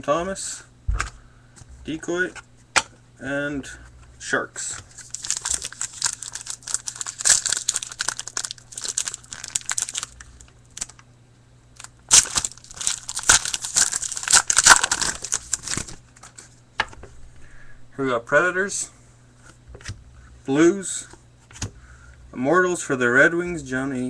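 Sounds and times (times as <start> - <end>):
card pack wrappers tearing and crinkling: 4.8 - 11.0, 11.8 - 16.4.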